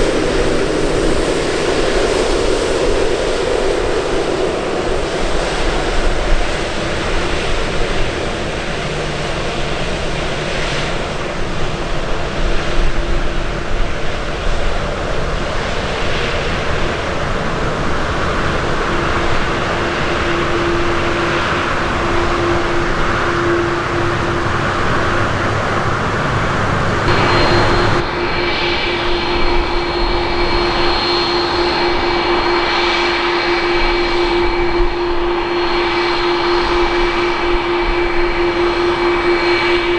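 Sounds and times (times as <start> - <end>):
jet engines roaring: 8.3 - 29.2
high steady whines: 10.8 - 28.4.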